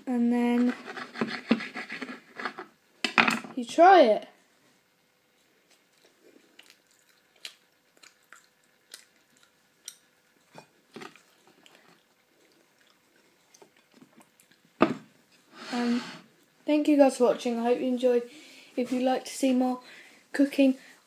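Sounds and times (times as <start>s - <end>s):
faint chewing: 5.4s - 15.5s.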